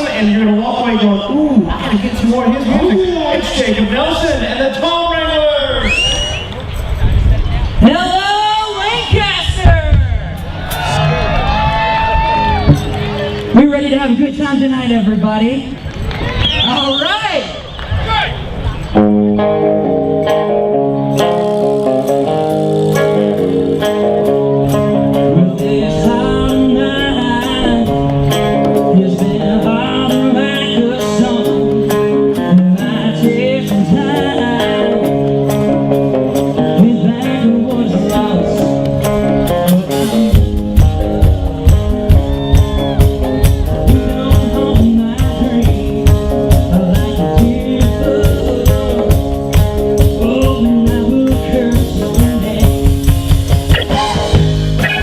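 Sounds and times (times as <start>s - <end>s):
country band playing: 0.0s - 55.0s
guitars: 5.7s - 16.6s, 18.4s - 55.0s
person singing: 25.0s - 35.4s, 36.4s - 40.2s, 42.1s - 55.0s
steady drum beat: 37.7s - 55.0s.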